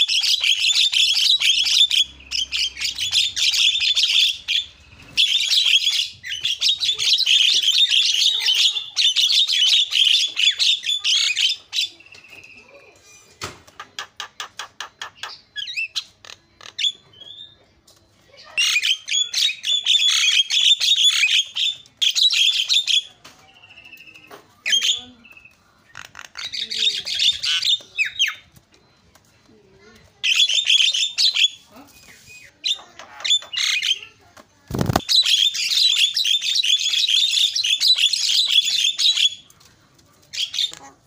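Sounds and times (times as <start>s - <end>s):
bird harsh chattering: 0.0s - 12.7s, 23.8s - 28.5s, 30.2s - 39.5s.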